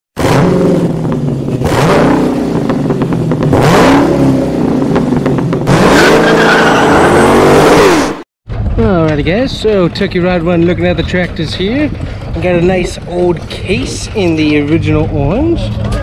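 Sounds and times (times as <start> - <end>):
car engines revving hard: 0.2 - 8.2.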